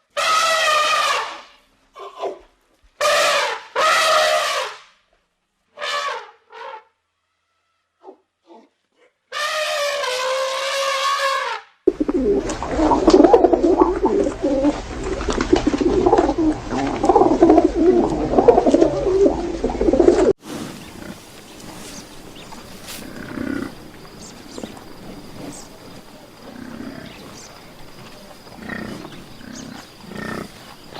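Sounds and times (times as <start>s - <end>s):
birds cooing and calling: 11.9s - 30.8s.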